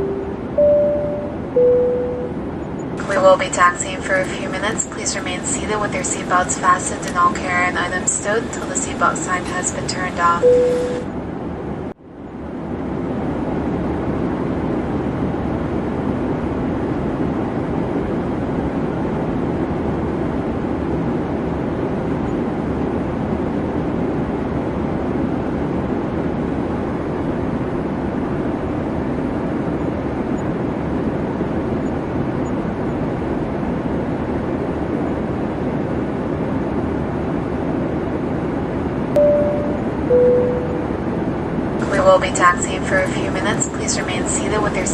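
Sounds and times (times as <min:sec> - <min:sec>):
cabin chime: 0:00.0 - 0:02.4, 0:39.2 - 0:41.0
airliner cabin rumble: 0:00.0 - 0:11.9, 0:12.5 - 0:44.9.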